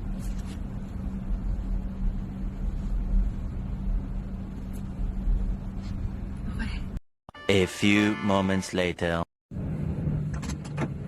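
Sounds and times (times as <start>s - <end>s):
vehicle engine hum: 0.0s - 7.0s, 9.5s - 11.0s.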